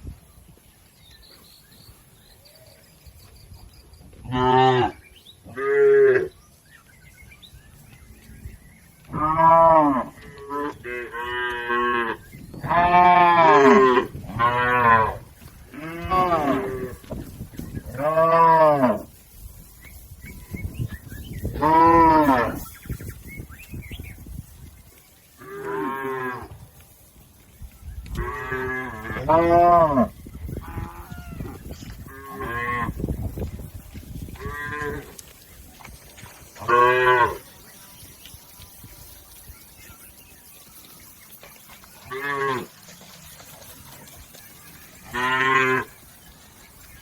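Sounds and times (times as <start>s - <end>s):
cattle mooing: 9.1s - 17.0s, 36.6s - 37.5s, 45.0s - 46.0s.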